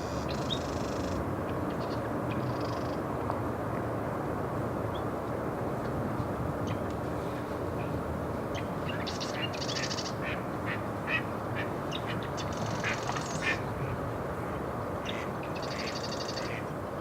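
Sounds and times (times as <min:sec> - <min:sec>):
wetland birds calling: 0:15.0 - 0:16.7.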